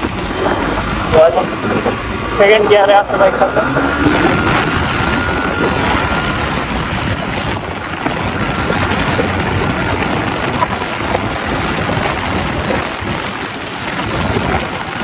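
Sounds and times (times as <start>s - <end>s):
motorcycle engine running: 0.0s - 15.0s
wind rush over microphone: 0.0s - 15.0s.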